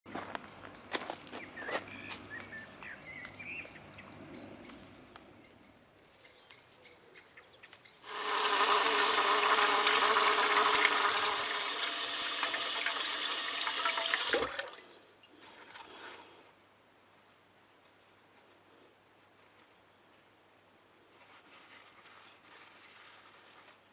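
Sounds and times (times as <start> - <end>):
tap water running: 8.0 - 15.9.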